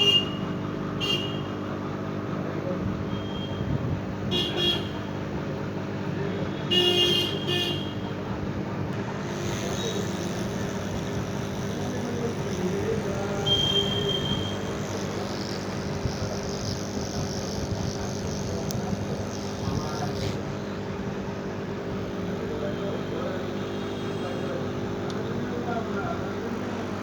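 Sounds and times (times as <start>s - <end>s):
street traffic hum: 0.0s - 27.0s
vehicle horn toots: 1.0s - 1.6s, 4.3s - 5.0s, 6.7s - 8.1s, 13.4s - 14.8s.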